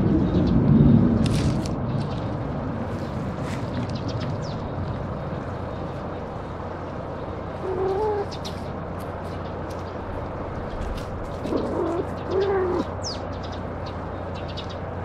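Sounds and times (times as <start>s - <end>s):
low cooing bird call: 7.6s - 8.7s, 11.3s - 13.6s.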